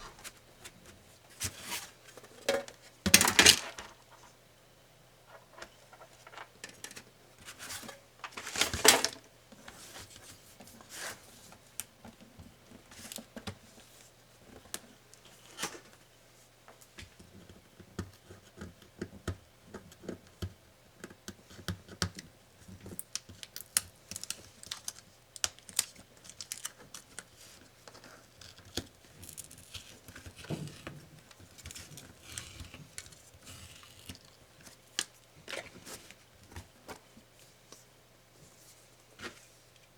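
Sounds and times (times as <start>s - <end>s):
film sheets crinkling and tearing: 23.1s - 30.5s.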